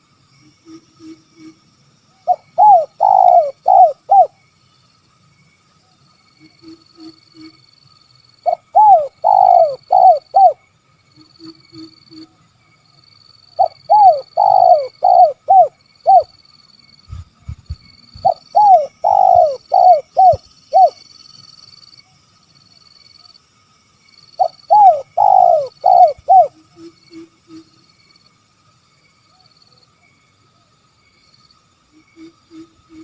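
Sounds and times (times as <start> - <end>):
dove cooing: 2.3 - 4.3, 8.4 - 10.6, 13.6 - 16.3, 17.1 - 21.0, 24.4 - 26.9.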